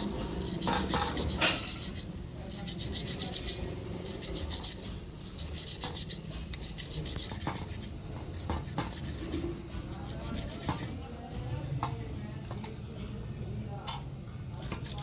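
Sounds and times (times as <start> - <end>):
rasping strokes by hand: 0.0 - 11.0, 14.6 - 15.0.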